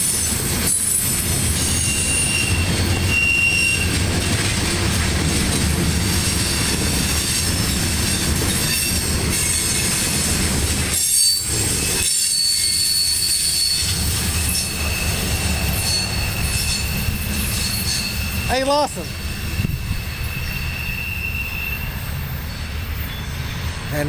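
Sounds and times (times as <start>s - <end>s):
train wheels rumbling on rail: 0.0s - 24.0s
high-pitched wheel squeal: 0.7s - 4.0s, 10.9s - 23.8s.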